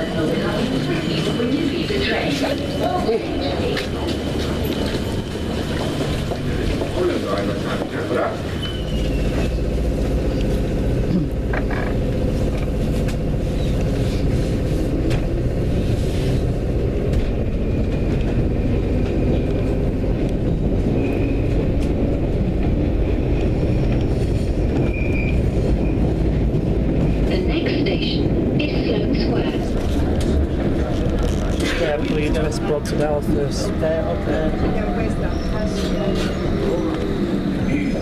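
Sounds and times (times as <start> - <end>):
train wheels rumbling and rattling: 0.0 - 38.0
high wheel squeal: 8.4 - 9.7, 24.8 - 26.0.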